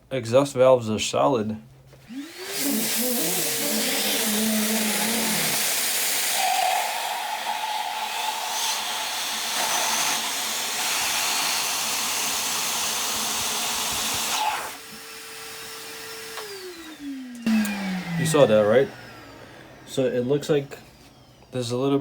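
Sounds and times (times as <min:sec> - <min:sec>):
vacuum cleaner running: 0:02.1 - 0:22.0
steady whine: 0:16.8 - 0:22.0.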